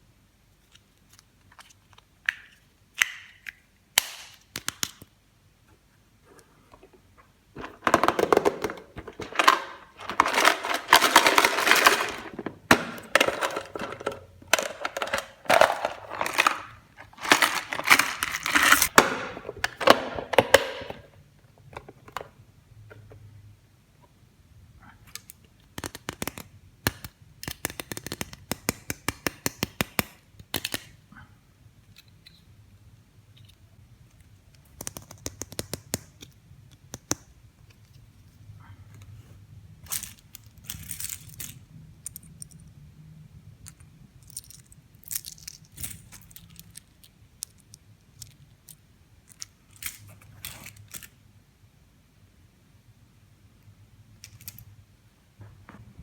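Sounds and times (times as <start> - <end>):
packaging rustling: 7.6 - 20.0
plastic toy pieces clicking: 7.8 - 19.0, 25.1 - 31.0, 43.6 - 51.1.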